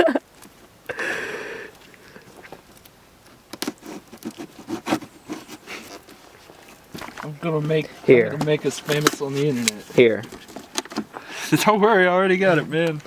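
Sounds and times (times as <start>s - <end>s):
cardboard crackling and crunching: 2.4s - 13.0s
cardboard ripping: 3.6s - 6.2s.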